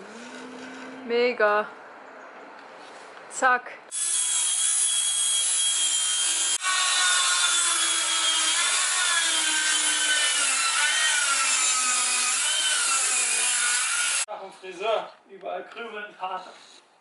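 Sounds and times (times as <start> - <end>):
power saw cutting wood: 3.9 - 14.3.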